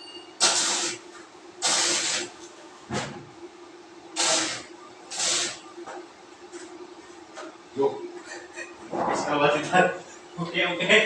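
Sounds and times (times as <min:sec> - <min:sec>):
steady hum: 0:00.0 - 0:11.0
hissing spray bursts: 0:00.4 - 0:01.0, 0:01.6 - 0:02.3, 0:04.2 - 0:05.6.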